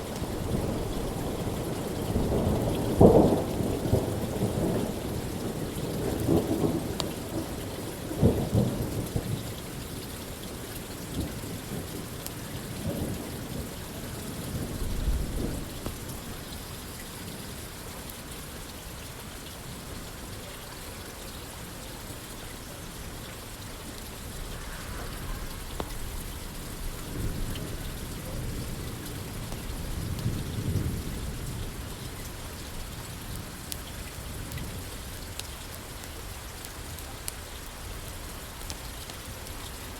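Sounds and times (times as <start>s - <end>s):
rain pattering on a roof: 0.0s - 39.9s
thunder rumbling: 12.8s - 16.5s, 24.3s - 33.3s.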